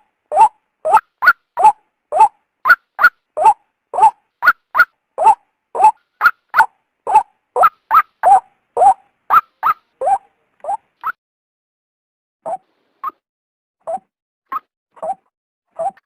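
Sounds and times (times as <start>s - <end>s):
waterhen calling: 0.3s - 10.2s.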